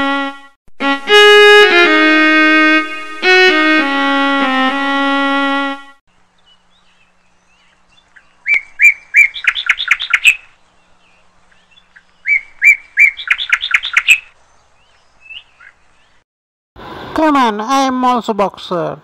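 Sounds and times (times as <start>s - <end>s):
small bird chirping: 6.1s - 16.2s.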